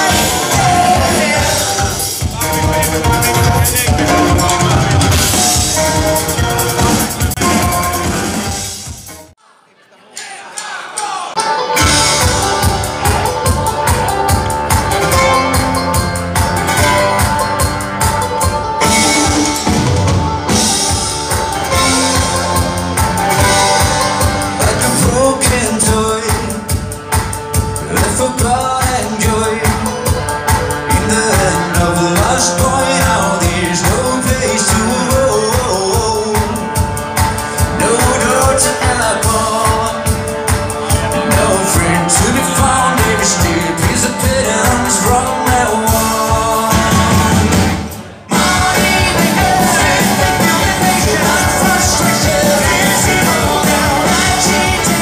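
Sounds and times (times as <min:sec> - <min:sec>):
person singing: 0:00.0 - 0:08.3, 0:20.4 - 0:55.0
acoustic rock band playing: 0:00.0 - 0:09.4, 0:11.2 - 0:55.0
drum kit beat: 0:00.0 - 0:09.4, 0:10.6 - 0:55.0.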